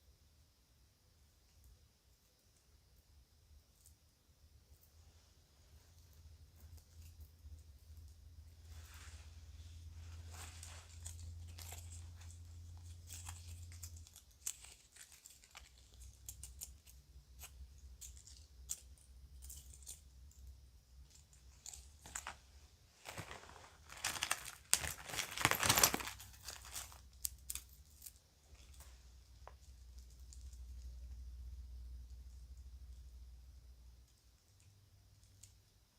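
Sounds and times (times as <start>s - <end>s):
bag crinkling and rustling: 8.7s - 16.6s, 21.4s - 29.6s
jewelry clicking: 10.9s - 22.3s.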